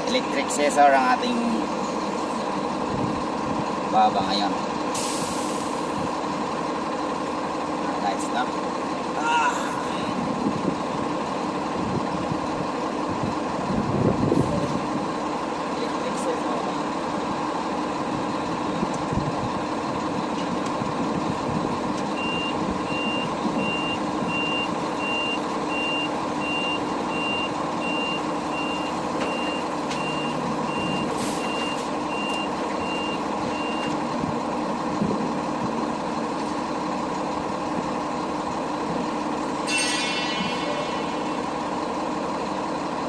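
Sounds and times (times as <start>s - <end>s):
truck engine running: 0.0s - 43.0s
truck backup alarm beeping: 22.1s - 34.5s.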